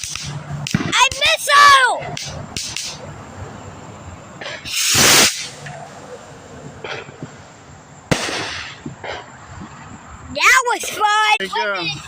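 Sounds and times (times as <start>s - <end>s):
firework launching whoosh: 4.4s - 6.1s, 8.1s - 9.2s.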